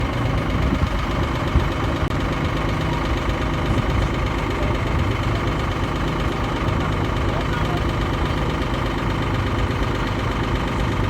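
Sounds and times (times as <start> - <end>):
boat diesel engine running: 0.0 - 11.0.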